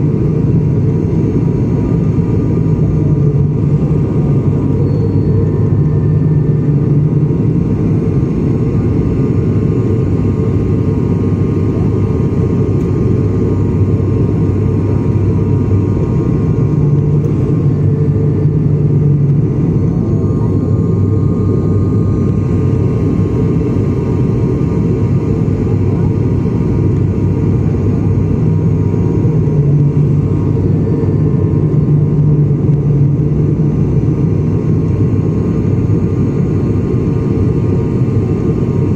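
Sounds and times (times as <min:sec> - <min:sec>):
aircraft engines droning: 0:00.0 - 0:38.9
faint high tones: 0:04.7 - 0:06.6.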